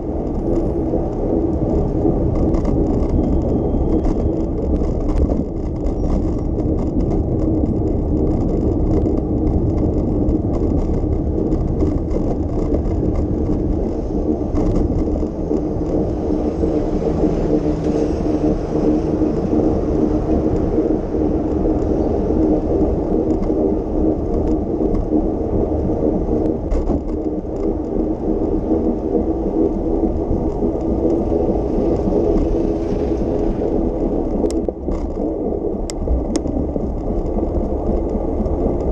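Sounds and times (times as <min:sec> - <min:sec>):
bicycle tyres rumbling and whirring: 0:00.0 - 0:38.9.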